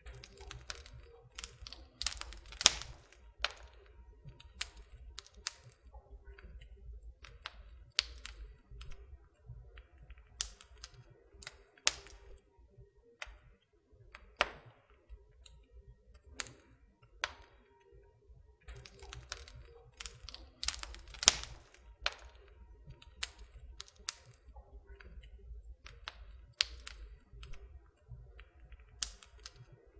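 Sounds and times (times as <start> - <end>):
wood fire crackling and popping: 0.0 - 29.9.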